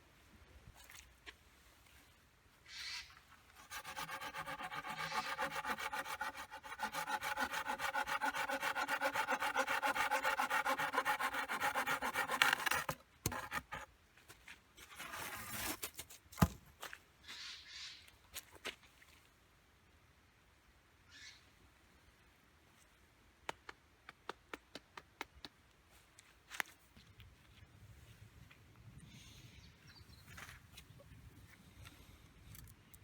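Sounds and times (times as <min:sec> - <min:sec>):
rasping strokes on wood: 0:03.6 - 0:13.9.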